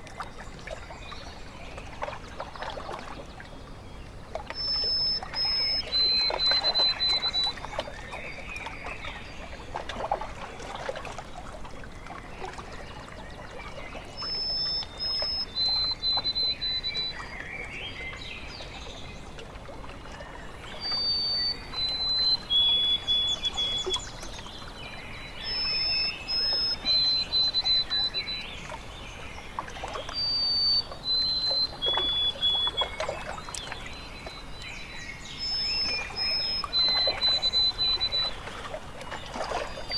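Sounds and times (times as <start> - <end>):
water lapping and trickling: 0.0 - 39.9
songbird singing: 3.2 - 9.6, 13.2 - 19.4, 20.1 - 39.9.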